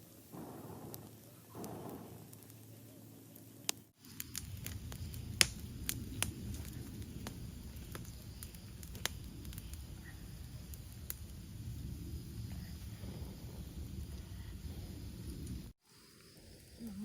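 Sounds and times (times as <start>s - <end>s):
cooking fire crackling and popping: 0.0s - 17.0s
low rumble: 4.3s - 15.8s.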